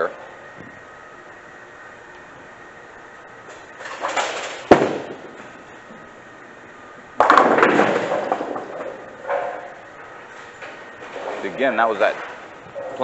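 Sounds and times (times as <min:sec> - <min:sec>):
bowling pins crashing: 0:03.8 - 0:05.6, 0:07.2 - 0:09.8
bowling ball rolling: 0:03.8 - 0:06.1, 0:07.0 - 0:13.0
bowling ball thud: 0:04.0 - 0:06.1, 0:07.2 - 0:09.9.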